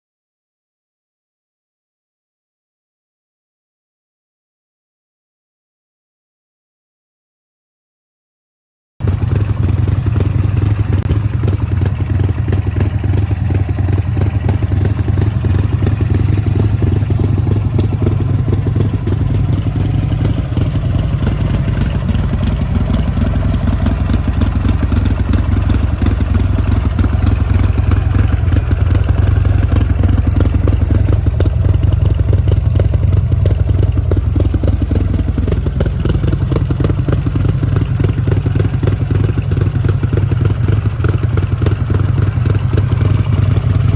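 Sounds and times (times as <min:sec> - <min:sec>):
motorcycle engine throbbing: 0:09.0 - 0:43.9.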